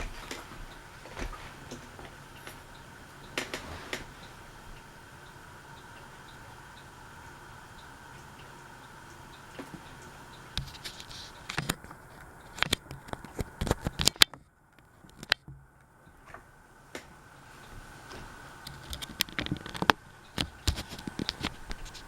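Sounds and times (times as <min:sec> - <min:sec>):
ceiling fan hum: 0:00.0 - 0:22.0
sharp clicks and knocks: 0:09.4 - 0:17.1, 0:17.7 - 0:22.0.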